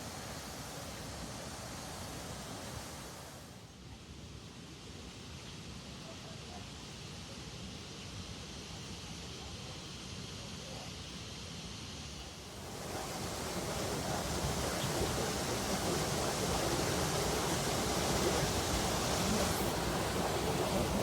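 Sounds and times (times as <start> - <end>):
water rushing: 0.0 - 3.6, 12.3 - 21.0.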